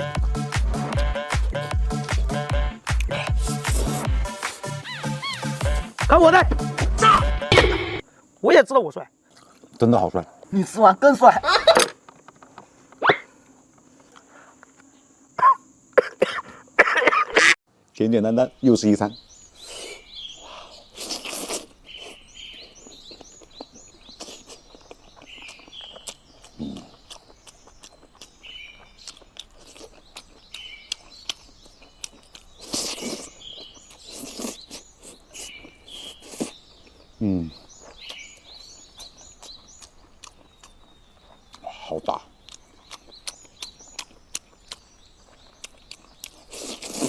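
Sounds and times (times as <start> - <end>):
small birds chirping: 0.0 - 16.5, 17.9 - 47.0
eating smacks and slurps: 20.9 - 23.4, 29.0 - 36.6, 42.5 - 47.0.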